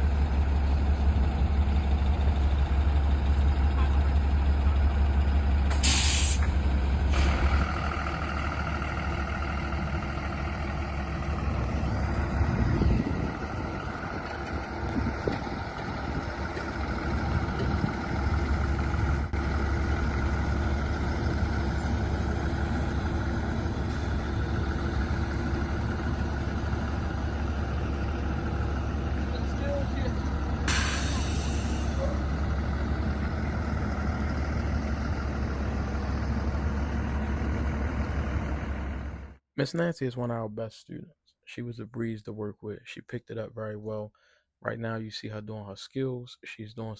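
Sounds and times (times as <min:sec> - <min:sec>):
heavy vehicle engine running: 0:00.0 - 0:39.4
air brake hiss: 0:05.7 - 0:06.5, 0:30.7 - 0:32.2.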